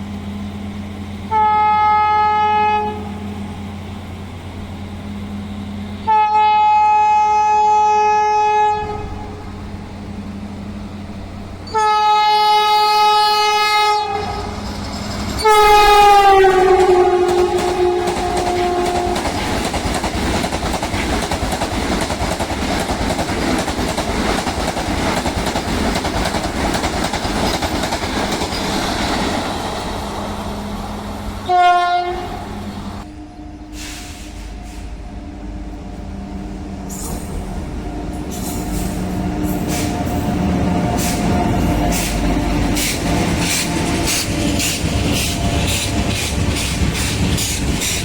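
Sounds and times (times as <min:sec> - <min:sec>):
train passing at speed: 0:00.0 - 0:48.0
train horn blast: 0:01.2 - 0:03.5, 0:05.9 - 0:09.5, 0:11.6 - 0:14.6, 0:15.4 - 0:19.5, 0:31.4 - 0:36.1.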